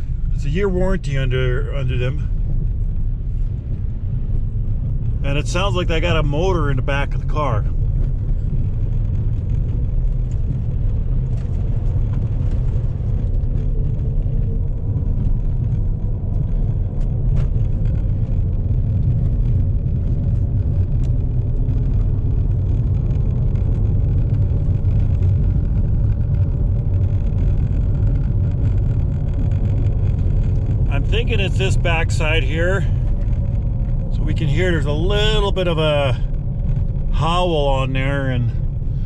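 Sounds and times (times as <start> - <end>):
car driving low rumble: 0.0 - 39.0.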